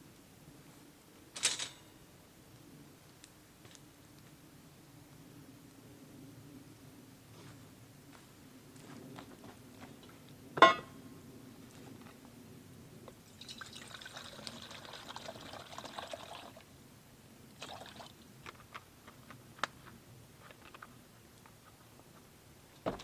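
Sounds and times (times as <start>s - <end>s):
liquid pouring into container: 13.3s - 16.6s, 17.6s - 18.2s.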